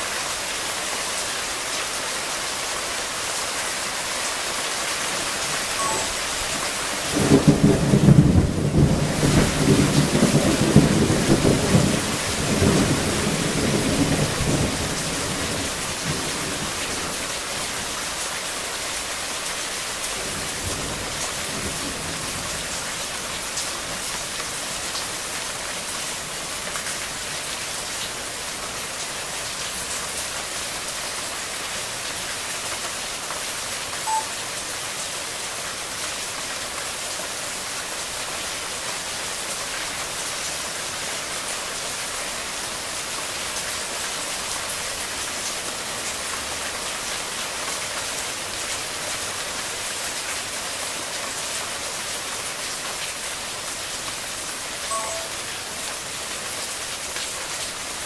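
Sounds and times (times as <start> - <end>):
rain falling on foliage: 0.0 - 58.0
short high tone: 5.8 - 6.7, 34.1 - 34.4, 54.9 - 55.6.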